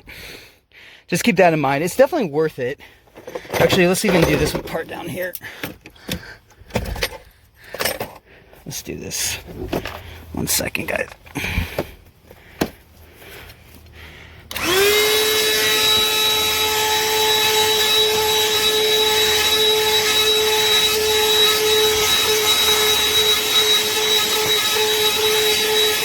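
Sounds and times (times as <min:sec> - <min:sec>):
handheld vacuum whining: 0:11.1 - 0:26.0.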